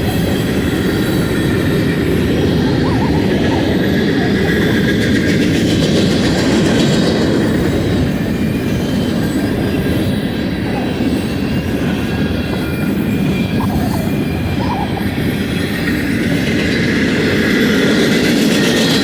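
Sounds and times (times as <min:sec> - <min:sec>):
train wheels rumbling on rails: 0:00.0 - 0:19.0
high-pitched wheel squeal: 0:07.5 - 0:17.0.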